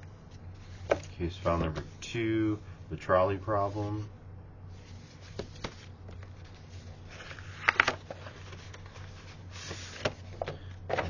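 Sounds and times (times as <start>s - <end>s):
paper rustling and sliding: 4.7s - 10.4s.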